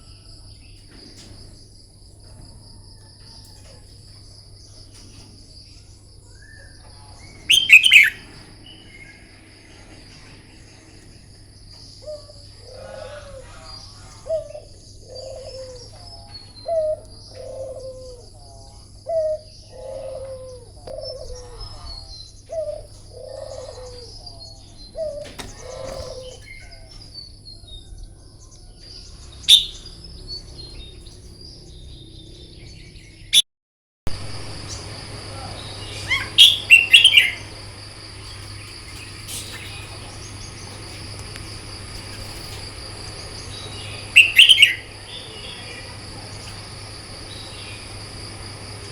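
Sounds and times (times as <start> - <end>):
low falling bird notes: 0.0 - 18.3, 29.4 - 32.9, 34.1 - 48.9
bird calling in loud bursts: 7.5 - 9.0, 29.5 - 29.8, 34.6 - 48.9
steady high-pitched whine: 34.1 - 48.9.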